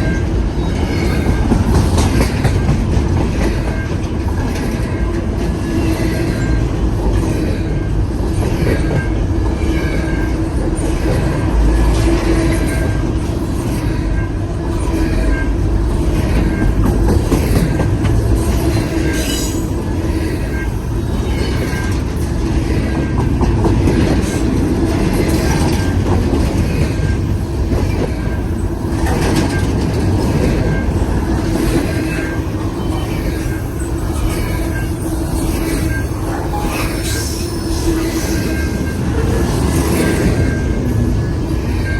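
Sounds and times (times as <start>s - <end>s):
freight train cars rolling: 0.0s - 41.9s
wheel squeal: 31.6s - 41.0s.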